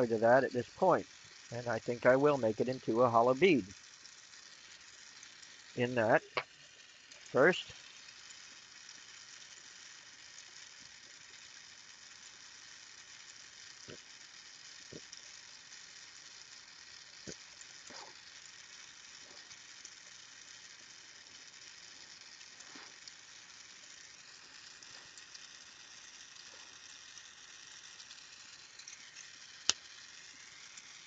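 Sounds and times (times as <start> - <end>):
glass and tools ticking: 0.0 - 31.0
torch flame hissing: 13.7 - 31.0.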